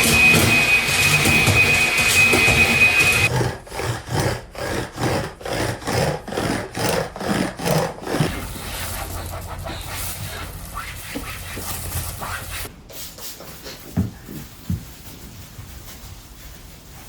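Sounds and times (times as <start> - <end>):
cloth rubbing floor: 0.0 - 3.3, 8.2 - 17.0
vacuum cleaner whining: 0.0 - 3.3, 8.2 - 12.7.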